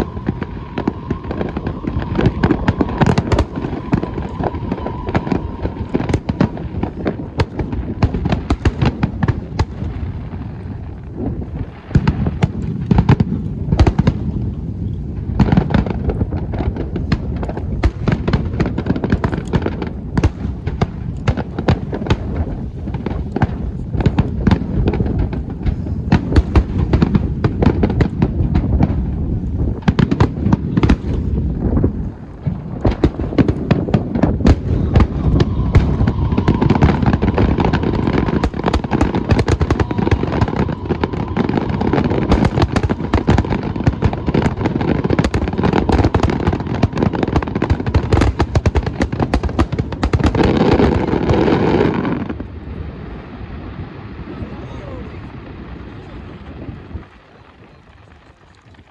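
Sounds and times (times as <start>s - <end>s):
low rumble: 0.0s - 17.8s, 19.9s - 48.5s
fireworks bangs and crackles: 0.0s - 58.9s.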